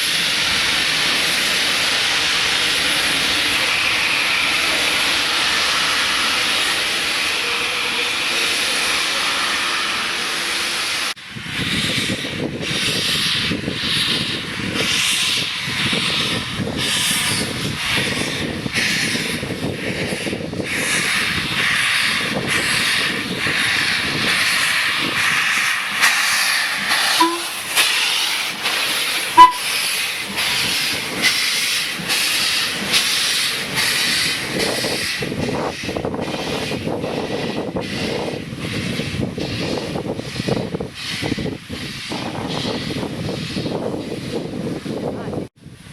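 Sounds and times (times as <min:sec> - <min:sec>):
steam hissing: 0:00.0 - 0:45.9.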